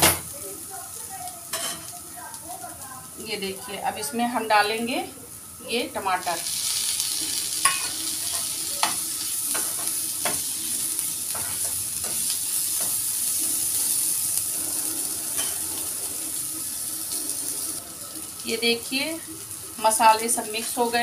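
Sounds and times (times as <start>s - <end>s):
food sizzling in oil: 0.0s - 21.0s
spoon clinking and scraping pan: 7.6s - 10.5s, 15.3s - 15.6s.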